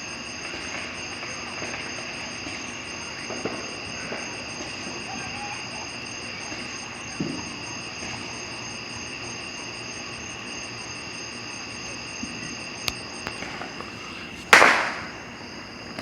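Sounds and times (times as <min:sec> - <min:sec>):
insects trilling: 0:00.0 - 0:16.0
firework bang: 0:00.4 - 0:08.4, 0:14.5 - 0:15.3.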